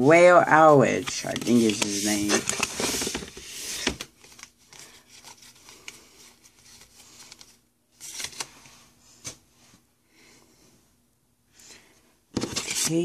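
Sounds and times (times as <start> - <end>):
card rustle: 0.9 - 9.4, 12.3 - 13.0
trading cards sliding and rubbing: 1.1 - 9.4.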